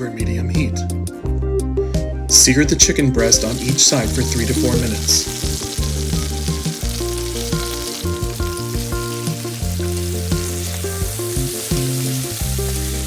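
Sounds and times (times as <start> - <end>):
background music: 0.0 - 13.0
chicken sizzling in a skillet: 3.2 - 13.0.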